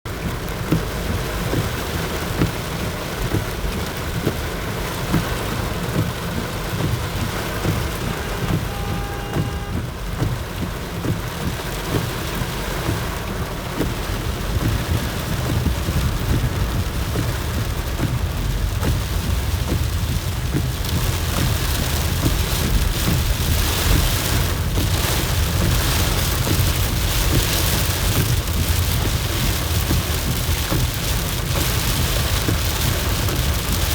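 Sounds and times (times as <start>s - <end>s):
heavy rain falling: 0.1s - 33.9s
raindrops ticking on a surface: 0.1s - 33.9s
low rumble: 12.3s - 33.9s.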